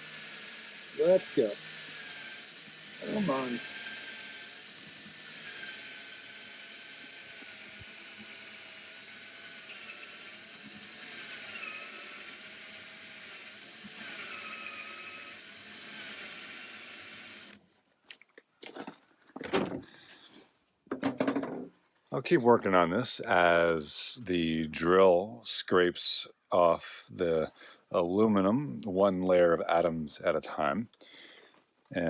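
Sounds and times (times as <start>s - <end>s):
cordless drill grinding into metal: 0.6s - 17.6s.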